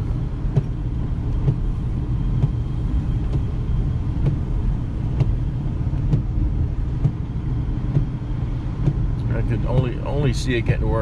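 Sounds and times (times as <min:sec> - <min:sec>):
car road rumble: 0:00.0 - 0:11.0.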